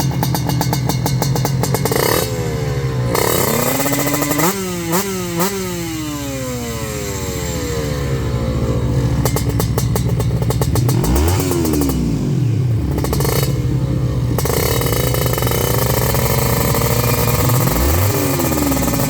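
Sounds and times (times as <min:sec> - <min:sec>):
motorcycle engine revving loudly: 0:00.0 - 0:19.0.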